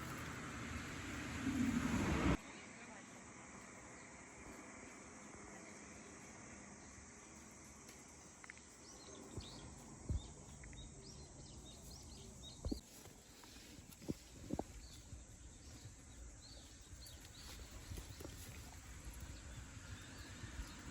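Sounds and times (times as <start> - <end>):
faint steady background noise: 0.0 - 20.9
small birds chirping: 3.6 - 20.9
soft low thumps: 9.3 - 11.0, 12.5 - 12.8.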